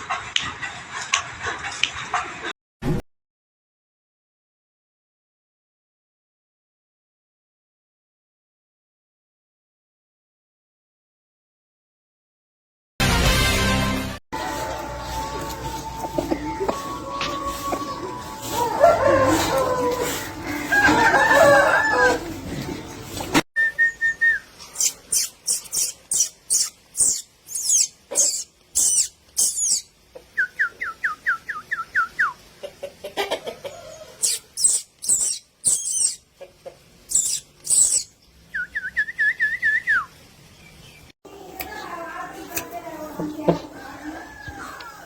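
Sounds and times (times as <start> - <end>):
voice or music: 13.1 - 20.7
birds chirping: 14.4 - 32.3, 33.8 - 36.4, 37.0 - 45.0
bird whistling descending notes: 23.6 - 32.4, 34.2 - 36.2, 37.1 - 40.1.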